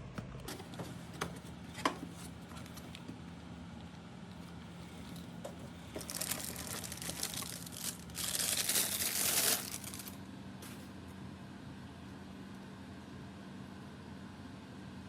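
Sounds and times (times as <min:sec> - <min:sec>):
packaging rustle: 0:02.0 - 0:03.1, 0:04.8 - 0:10.8
packaging crinkling and tearing: 0:05.0 - 0:10.8.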